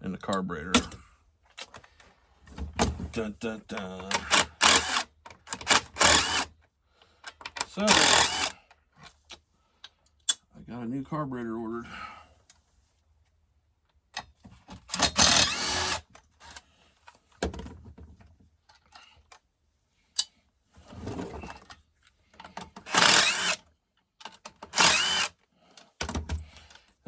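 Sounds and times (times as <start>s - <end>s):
tool clicks and clatter: 2.6s - 6.6s, 7.2s - 9.4s, 14.2s - 17.7s, 21.4s - 26.9s.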